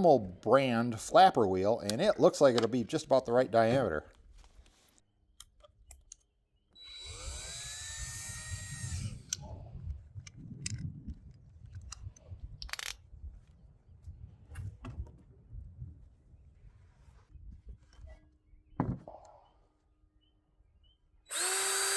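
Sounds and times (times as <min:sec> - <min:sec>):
electric drill motor whine: 0:06.8 - 0:09.4, 0:21.3 - 0:21.9.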